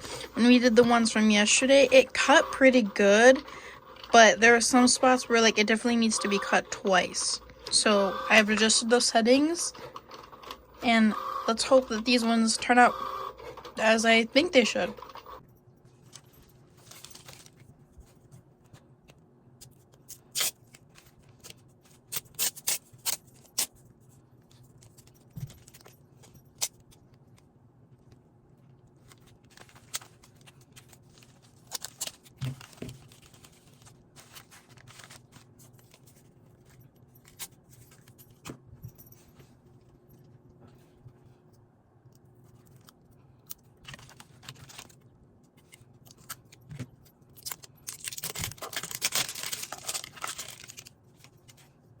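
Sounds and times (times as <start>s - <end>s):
cutting machine motor hum: 6.1s - 9.0s.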